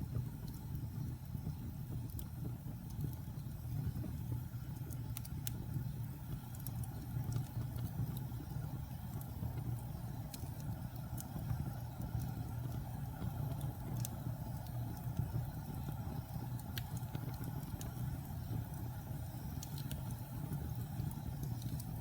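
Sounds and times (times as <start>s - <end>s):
low rumble of burning fire: 0.0s - 22.0s
wood fire pops and snaps: 0.0s - 22.0s.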